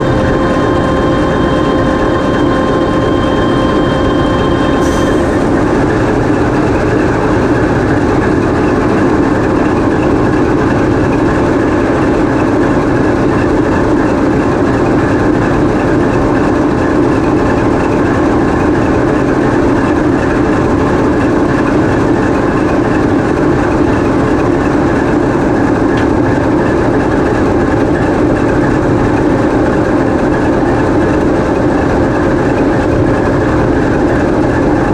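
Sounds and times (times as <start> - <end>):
thin whine tones: 0.0 - 12.6
diesel engine droning: 0.0 - 34.9.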